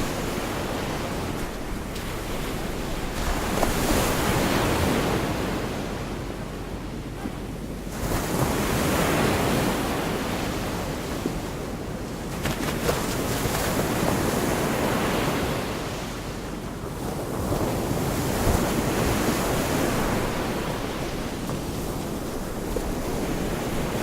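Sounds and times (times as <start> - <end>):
surf washing onto beach: 0.0 - 6.0
wind buffeting microphone: 0.0 - 6.5, 16.9 - 24.0.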